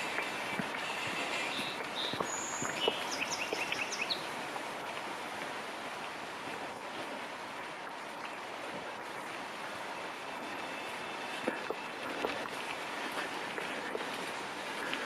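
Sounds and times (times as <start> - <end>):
steady rushing background: 0.0 - 15.0
bird chirping: 0.1 - 4.3.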